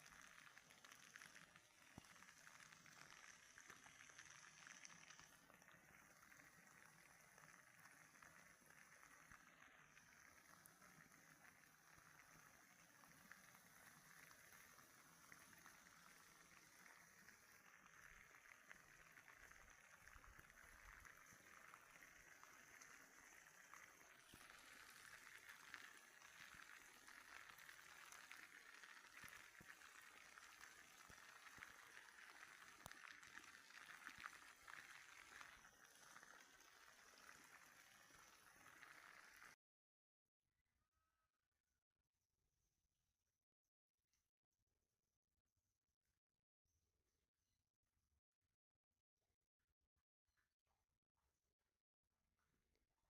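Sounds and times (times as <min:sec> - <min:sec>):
running water: 0:00.0 - 0:39.6.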